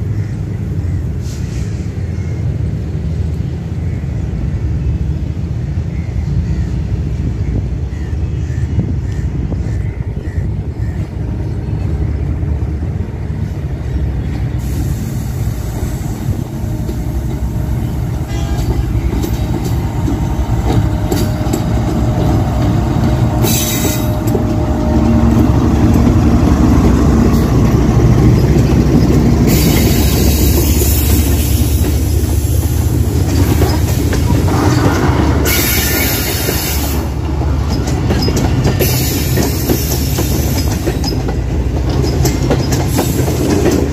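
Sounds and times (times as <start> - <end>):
train rumbling past: 0.0 - 43.9
train wheels clattering and squealing: 13.4 - 43.9.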